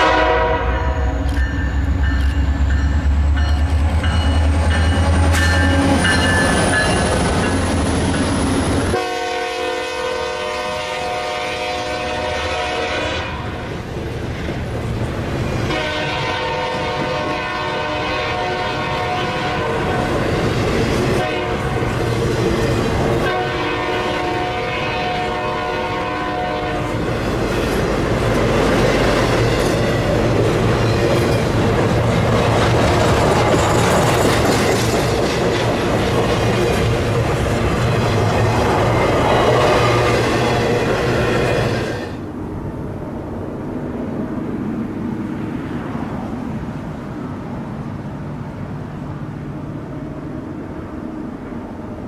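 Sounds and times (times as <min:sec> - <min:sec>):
locomotive air horn blasts: 0:00.0 - 0:01.3, 0:08.9 - 0:13.7, 0:15.7 - 0:19.9, 0:21.2 - 0:21.9, 0:23.2 - 0:27.0
train wheels and engines rumbling: 0:00.0 - 0:52.0
wheels clickety-clack: 0:27.3 - 0:39.2.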